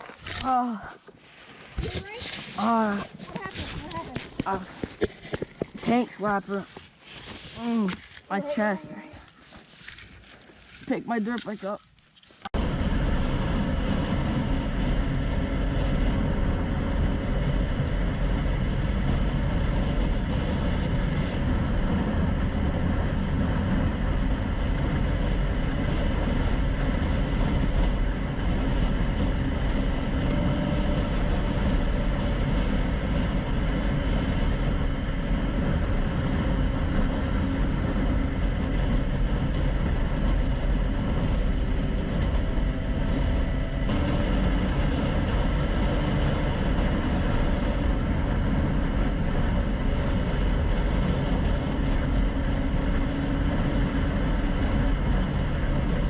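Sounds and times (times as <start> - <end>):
motorcycle engine: 12.5 - 56.0.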